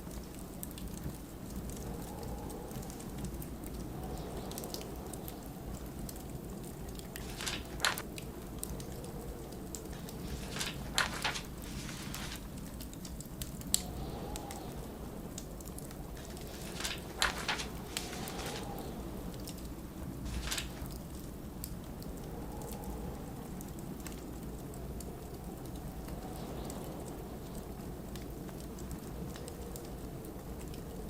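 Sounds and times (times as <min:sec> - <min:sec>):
blizzard wind howling: 0:00.0 - 0:31.0
wood fire crackling: 0:00.0 - 0:31.0
pages turning: 0:07.1 - 0:08.0, 0:10.0 - 0:12.5, 0:16.2 - 0:19.0, 0:20.2 - 0:21.0.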